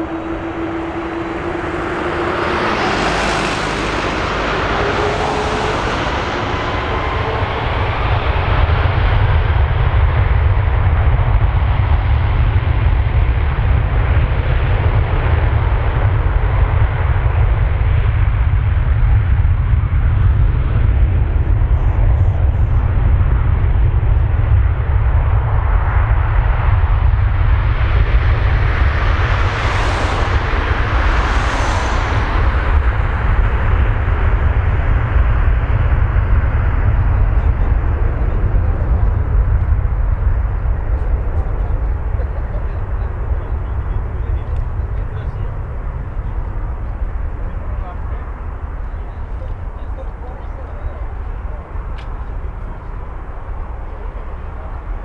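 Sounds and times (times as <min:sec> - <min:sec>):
faint whining tones: 0:00.0 - 0:10.0
jet engines roaring: 0:00.0 - 0:55.0.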